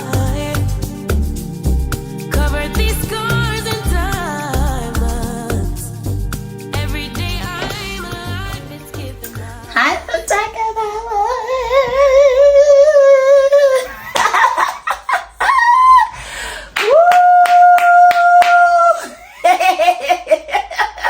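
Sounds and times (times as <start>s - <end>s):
hand claps: 14.2s - 14.5s, 16.8s - 18.8s.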